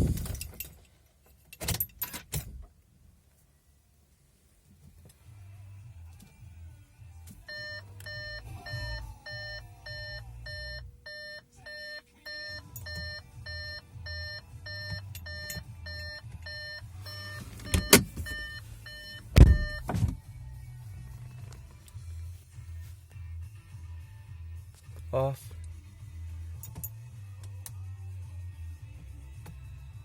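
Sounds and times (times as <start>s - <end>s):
car warning chime beeping: 7.4s - 19.9s
loud thumps: 19.3s - 20.2s.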